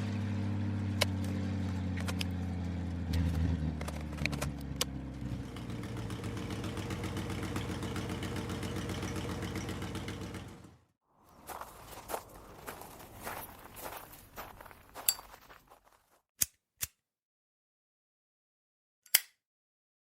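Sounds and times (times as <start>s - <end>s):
motor engine running: 0.0s - 13.4s.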